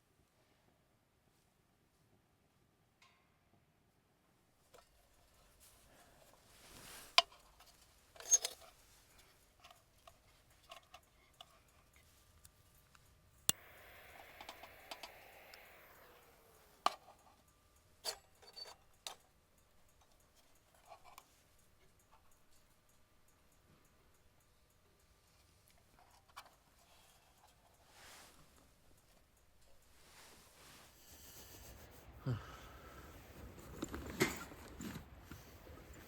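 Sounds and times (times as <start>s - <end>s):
clicks and knocks of objects handled: 4.7s - 12.6s
short rushing hiss: 13.6s - 17.2s.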